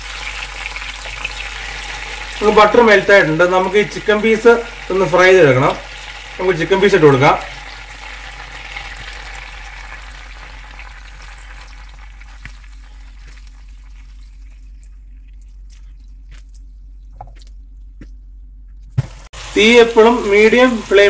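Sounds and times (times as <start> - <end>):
chicken sizzling in butter: 0.0 - 15.7, 19.0 - 21.0.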